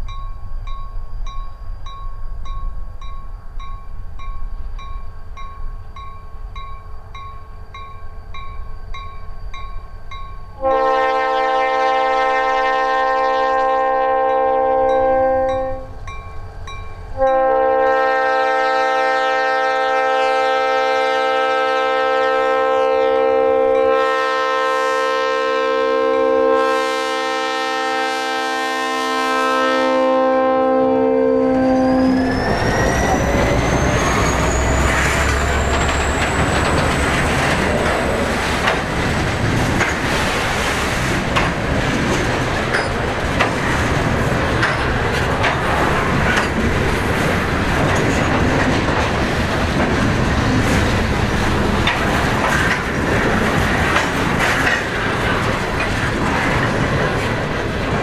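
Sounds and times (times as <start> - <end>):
locomotive air horn chord: 10.6 - 16.0, 17.2 - 32.3
locomotive rumble: 30.0 - 58.0
rising whine: 31.5 - 38.4
wheels clicking over rails: 32.3 - 58.0.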